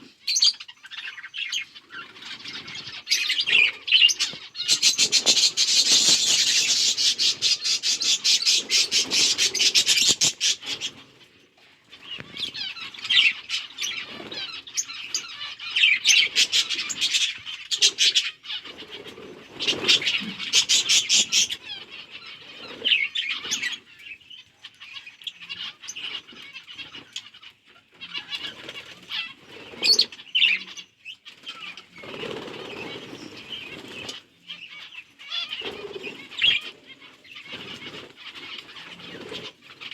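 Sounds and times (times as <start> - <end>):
budgies chirping: 0.0 - 11.3, 11.9 - 39.9
rapid wing flapping: 4.7 - 10.9.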